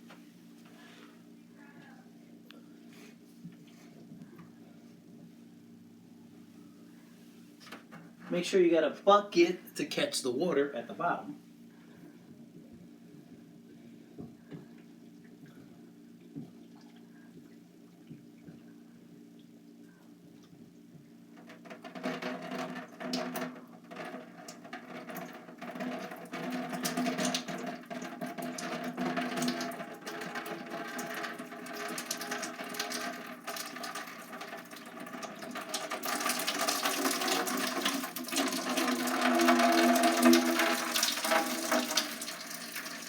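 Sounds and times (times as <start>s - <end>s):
water splashing into bucket: 21.5s - 43.0s.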